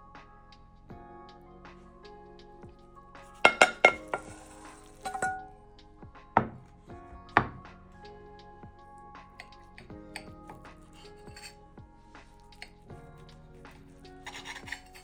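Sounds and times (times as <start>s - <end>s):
background music: 0.0s - 15.0s
utensil scraping: 3.4s - 5.5s, 9.4s - 11.6s, 12.2s - 15.0s
utensils knocking against dishes: 3.5s - 4.4s, 5.0s - 5.5s.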